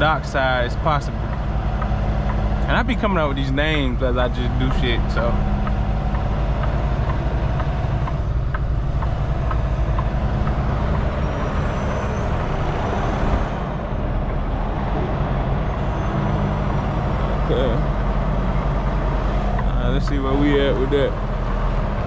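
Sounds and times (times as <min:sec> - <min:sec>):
faint ticking: 0:00.0 - 0:21.8
diesel truck engine reversing: 0:00.0 - 0:22.0.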